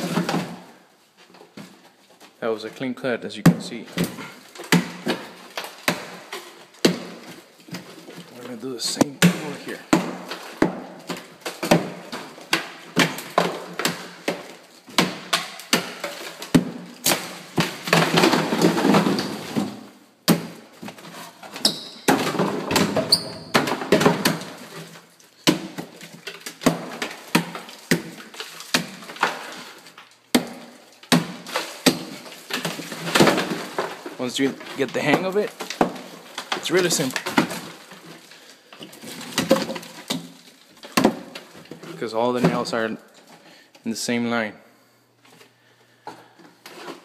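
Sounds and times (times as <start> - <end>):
board crunching and breaking: 4.0 - 41.8.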